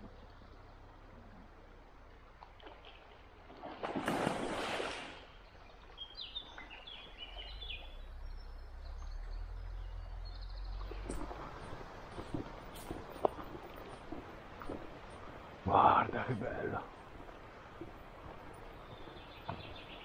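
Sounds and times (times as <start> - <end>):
bird chirping: 5.3 - 13.5, 18.6 - 20.0.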